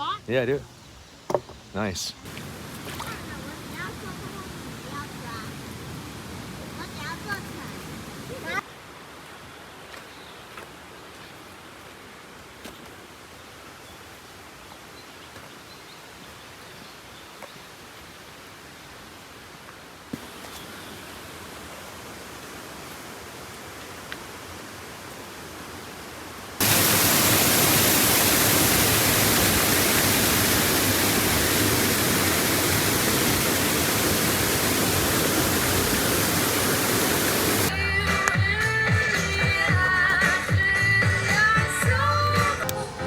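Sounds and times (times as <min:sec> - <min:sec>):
rushing river water: 0:02.2 - 0:43.0
music: 0:37.7 - 0:43.0.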